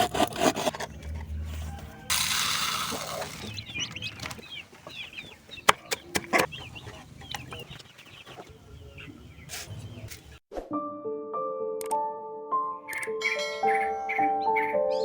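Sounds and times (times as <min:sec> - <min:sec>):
chickens clucking and cheeping: 0:01.0 - 0:10.4, 0:12.9 - 0:15.0.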